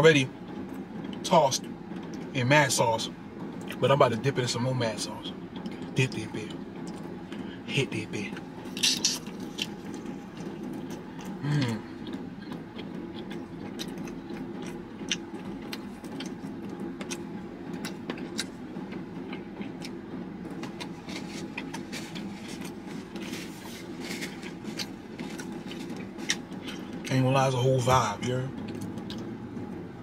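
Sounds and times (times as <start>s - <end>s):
car cabin hum: 0.0s - 30.0s
wet chewing: 8.6s - 27.1s
person humming mm: 11.4s - 11.9s
paper handling: 20.6s - 26.8s.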